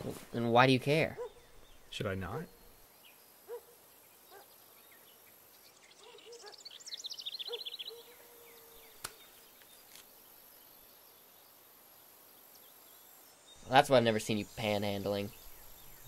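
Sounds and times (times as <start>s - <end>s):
faint background noise: 0.0s - 16.0s
sharp click: 9.0s - 9.2s.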